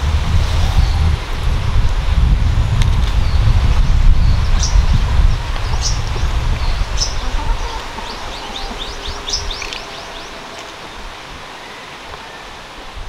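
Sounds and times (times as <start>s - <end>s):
low rumble: 0.0s - 10.3s
small birds chirping: 2.5s - 12.6s.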